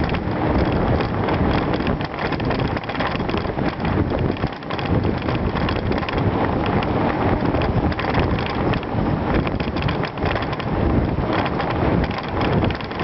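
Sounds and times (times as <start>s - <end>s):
bicycle rattles and bumps: 0.0s - 13.0s
bicycle riding over gravel: 0.0s - 13.0s
wind buffeting microphone: 0.0s - 13.0s.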